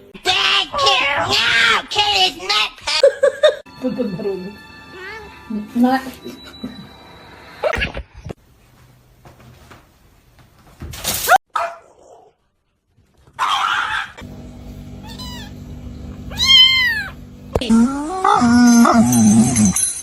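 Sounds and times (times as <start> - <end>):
cat meowing: 16.3 - 17.2.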